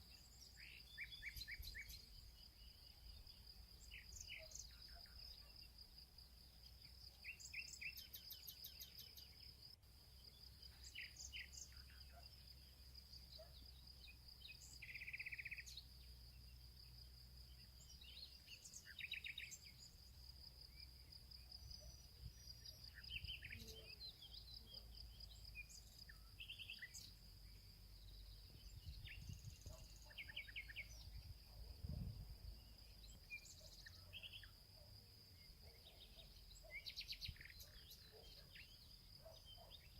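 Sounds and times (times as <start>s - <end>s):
bird chirps: 0.0s - 16.8s, 17.4s - 39.9s.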